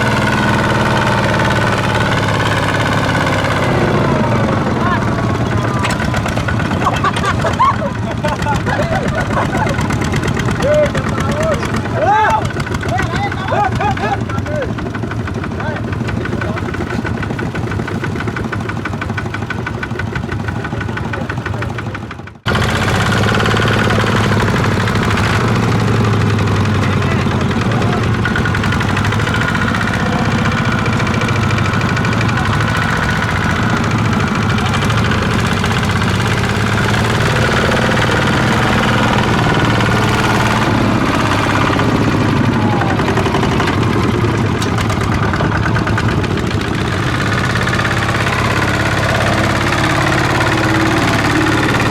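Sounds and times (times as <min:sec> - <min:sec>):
farm machine engine running: 0:00.0 - 0:51.9.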